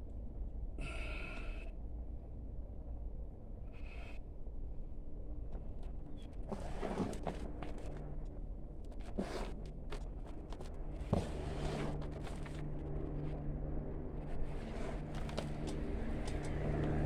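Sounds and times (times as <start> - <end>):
distant engine drone: 10.3 - 17.0.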